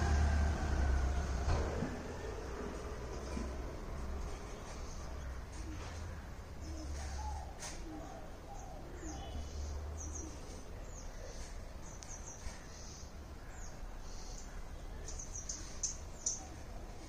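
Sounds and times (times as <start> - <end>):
small birds chirping: 4.0 - 17.0.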